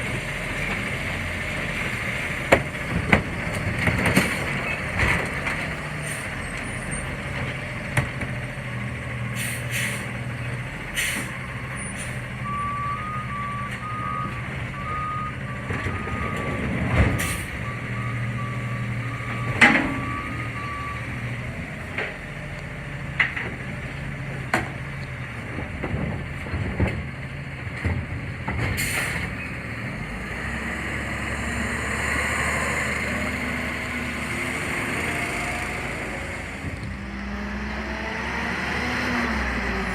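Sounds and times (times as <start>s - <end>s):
reverse alarm beeping: 12.4s - 16.6s, 17.6s - 21.2s.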